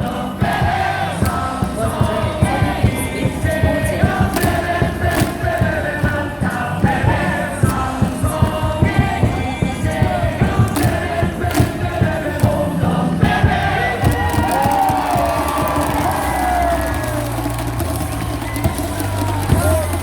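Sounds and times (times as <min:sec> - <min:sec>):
crowd singing in unison: 0:00.0 - 0:20.0
music over stadium speakers: 0:00.0 - 0:20.0.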